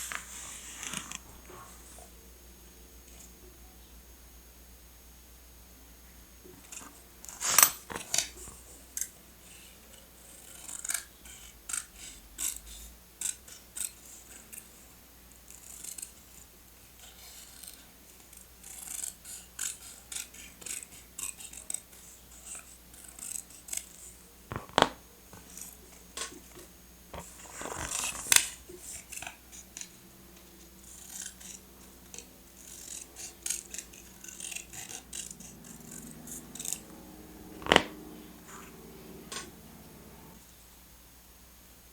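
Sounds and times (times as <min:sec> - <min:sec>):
paper rustling: 0:00.0 - 0:01.7, 0:27.2 - 0:29.2
scissors snipping: 0:30.8 - 0:40.1.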